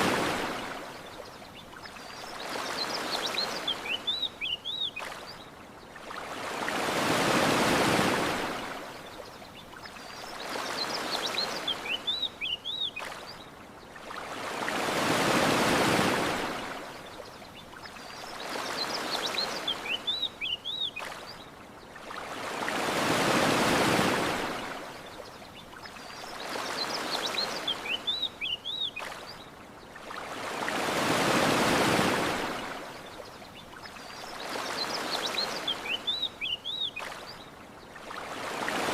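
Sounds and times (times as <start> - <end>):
ocean waves washing on shore: 0.0 - 38.9
small birds chirping: 1.0 - 6.0, 9.0 - 14.0, 17.0 - 22.0, 25.1 - 30.2, 33.0 - 38.0.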